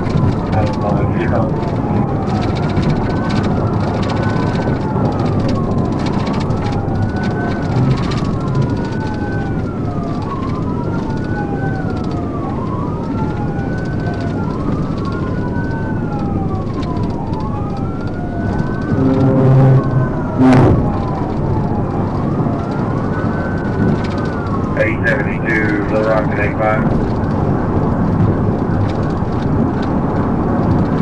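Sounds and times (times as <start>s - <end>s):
police siren wailing: 0.0s - 31.0s
road rumble: 0.0s - 31.0s
horn-like blast: 18.9s - 20.8s.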